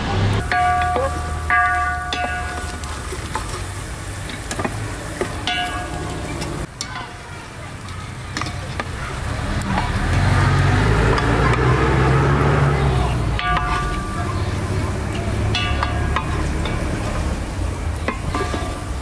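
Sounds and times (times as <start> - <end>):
nuts sizzling in hot fat: 0.4 - 13.3
wooden spatula scraping metal pot: 18.0 - 19.0.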